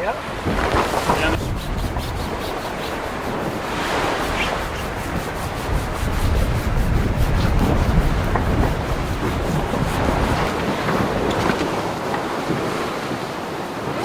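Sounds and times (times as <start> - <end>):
sea noise: 0.0 - 14.0
wind rushing: 0.3 - 12.0
rubbing or sanding noise: 0.6 - 10.7.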